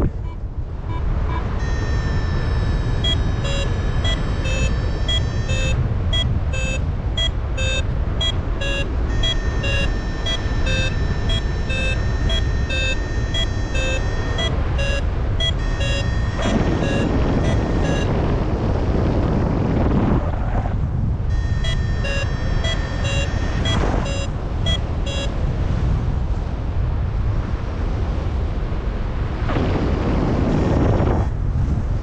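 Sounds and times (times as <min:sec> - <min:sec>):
variometer beeping: 0:00.0 - 0:18.4, 0:21.3 - 0:25.5
wind rumble on microphone: 0:00.0 - 0:32.0.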